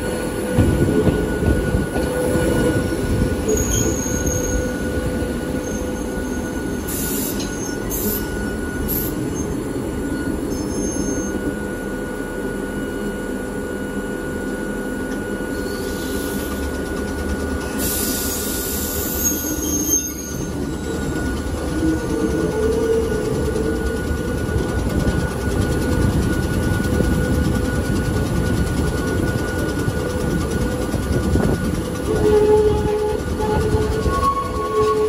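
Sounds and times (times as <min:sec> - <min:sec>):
railcar running with whine: 0:00.0 - 0:35.0
high-pitched wheel squeals: 0:01.0 - 0:11.5, 0:17.6 - 0:25.3, 0:31.2 - 0:35.0.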